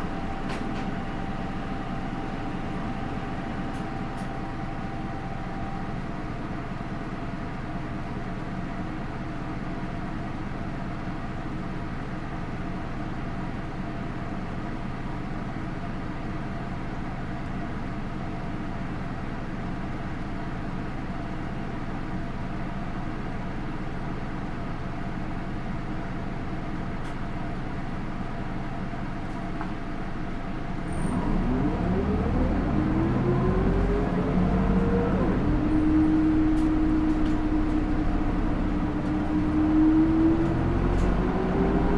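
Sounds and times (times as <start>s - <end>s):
bus accelerating: 0.0s - 6.1s, 30.7s - 41.9s
bus diesel engine idling: 0.0s - 41.9s.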